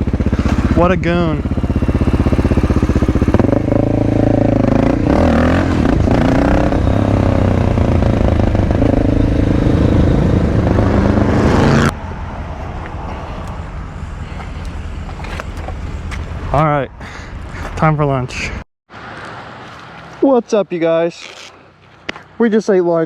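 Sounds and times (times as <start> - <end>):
motorcycle engine running: 0.0 - 16.6.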